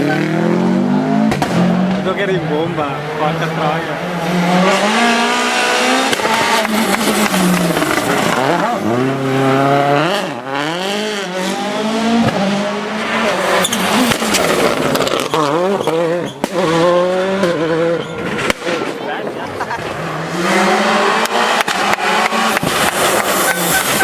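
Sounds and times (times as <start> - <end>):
rally car engine revving: 0.0 - 24.0
sharp cracks: 21.2 - 24.0.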